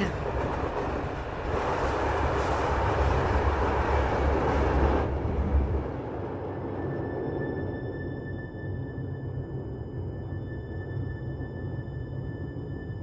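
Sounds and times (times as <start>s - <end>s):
train rumbling past: 0.0s - 7.0s.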